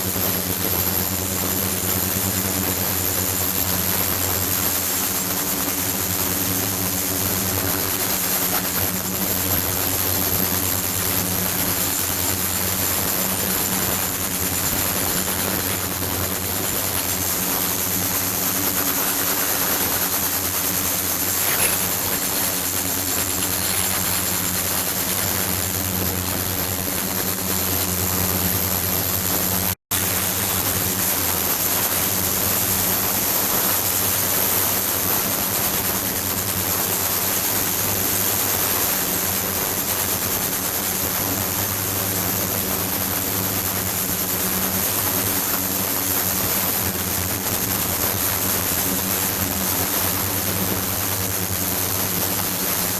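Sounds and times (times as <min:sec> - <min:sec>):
faint high whines: 0:00.0 - 0:30.5
mechanical hum with hiss: 0:00.0 - 0:52.9.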